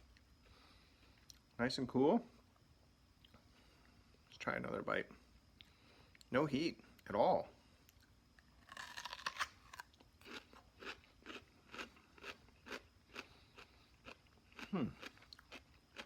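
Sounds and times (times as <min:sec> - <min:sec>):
chewing crunches: 0:07.9 - 0:16.0
crunchy bite into radish: 0:08.6 - 0:16.0.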